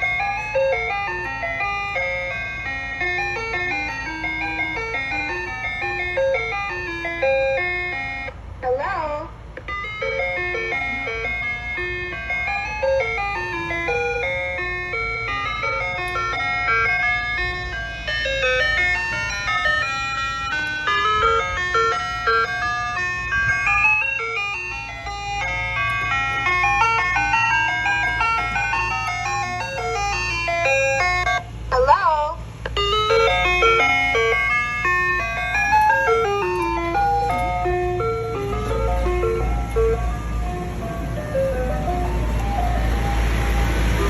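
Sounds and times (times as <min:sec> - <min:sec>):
ice cream truck chime melody: 0:00.0 - 0:44.0.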